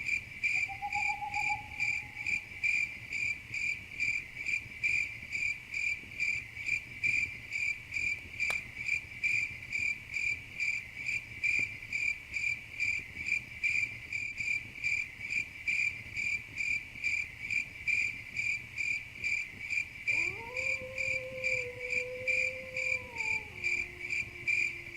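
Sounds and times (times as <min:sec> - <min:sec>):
cricket chirping: 0:00.0 - 0:24.9.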